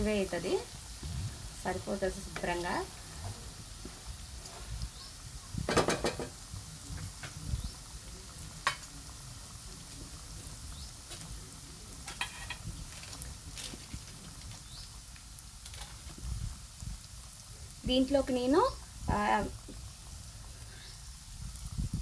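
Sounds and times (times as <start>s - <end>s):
food sizzling in oil: 0.0s - 22.0s
spoon scraping and clinking pan: 12.1s - 12.7s.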